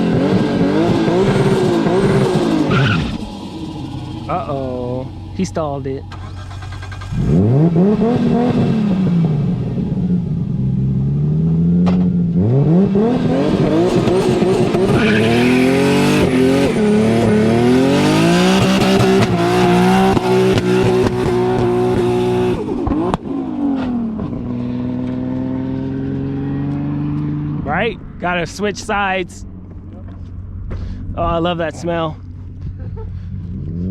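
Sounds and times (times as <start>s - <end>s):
car engine revving: 0.0s - 33.9s
tyres spinning and squealing: 1.8s - 7.2s, 14.7s - 16.4s.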